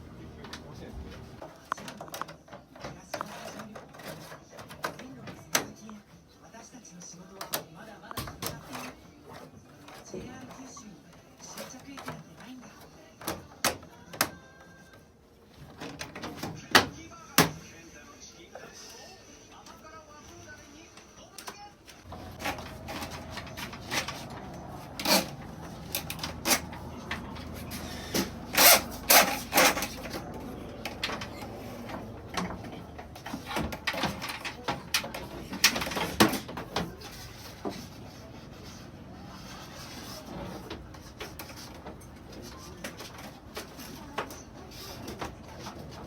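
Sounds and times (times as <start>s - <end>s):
hand tools clicking and knocking: 22.1s - 37.1s.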